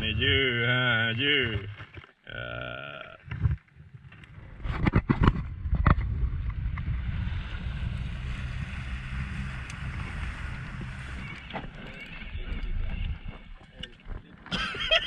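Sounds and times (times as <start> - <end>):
low rumble: 3.4 - 14.3.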